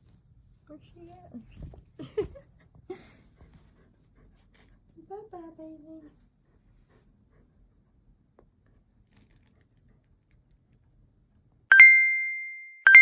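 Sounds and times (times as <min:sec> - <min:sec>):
bright bell ding: 0:11.7 - 0:13.0.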